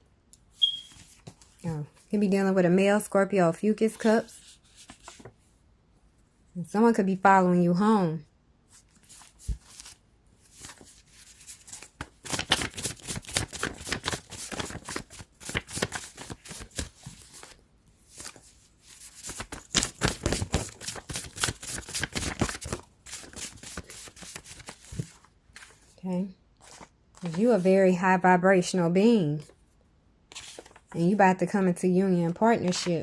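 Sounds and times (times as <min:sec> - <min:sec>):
cards being shuffled: 0:04.3 - 0:05.3, 0:08.7 - 0:25.9, 0:26.6 - 0:27.7, 0:30.3 - 0:31.0.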